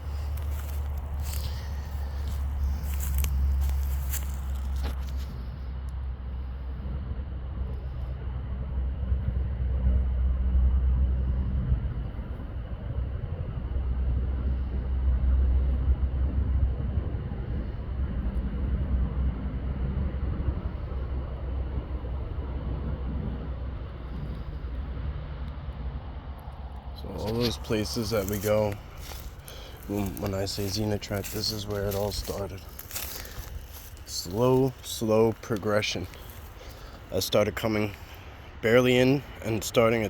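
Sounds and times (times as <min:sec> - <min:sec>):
distant engine rumble: 0:00.0 - 0:40.0.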